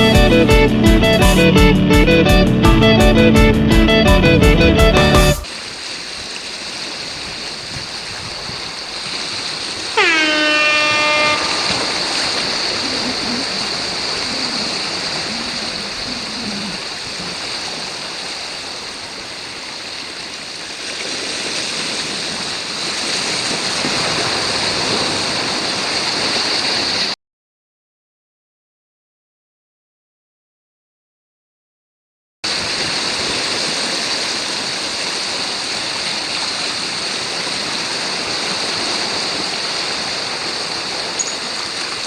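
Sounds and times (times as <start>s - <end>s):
horn blast: 0.0s - 5.4s, 10.0s - 12.5s
sea surf rushing: 0.0s - 27.2s, 32.5s - 42.0s.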